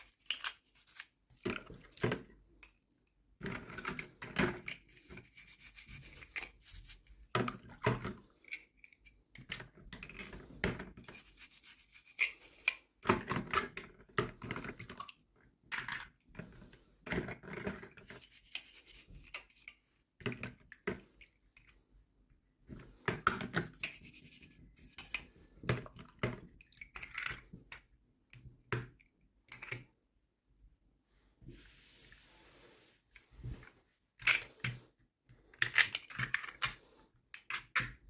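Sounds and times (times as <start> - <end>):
hands rustling toy packaging: 0.0 - 1.5, 11.1 - 12.8, 18.0 - 19.8.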